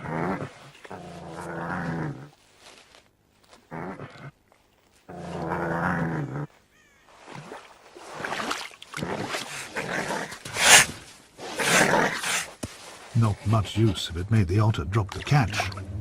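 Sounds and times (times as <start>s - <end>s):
otter growling: 0.0s - 2.4s, 5.1s - 6.6s, 9.0s - 12.5s, 13.2s - 16.0s
otter hissing snarls: 8.1s - 12.6s.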